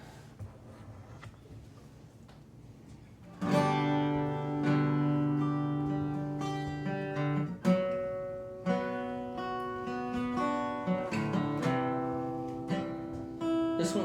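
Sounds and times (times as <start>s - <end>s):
acoustic guitar strumming chords: 3.3s - 14.0s.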